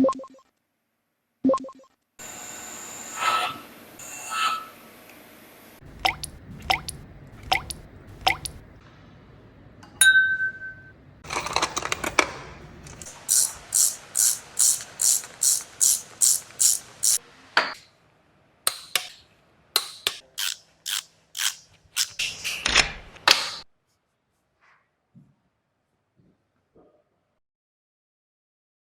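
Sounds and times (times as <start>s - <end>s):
ratchet wrench strokes: 13.0s - 17.2s, 20.0s - 22.4s.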